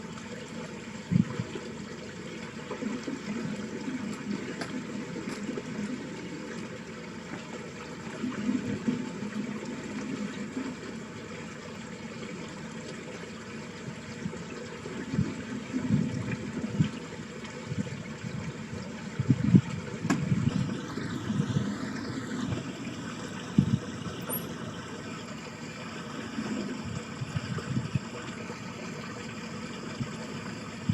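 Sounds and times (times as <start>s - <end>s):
water rushing down a ditch: 0.0s - 30.9s.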